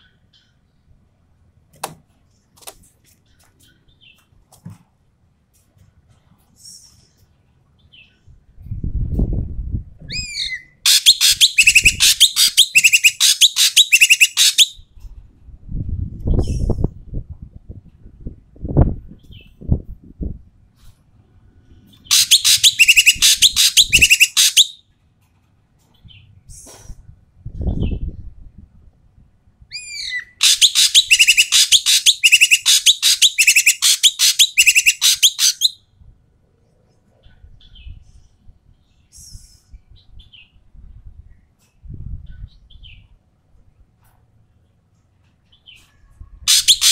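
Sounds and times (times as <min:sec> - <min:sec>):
bird down-slurred whistles: 0:10.1 - 0:14.8, 0:22.1 - 0:24.7, 0:29.8 - 0:35.8
bird harsh rasping chatter: 0:10.4 - 0:14.8, 0:22.1 - 0:24.8, 0:30.3 - 0:35.8, 0:46.5 - 0:46.9.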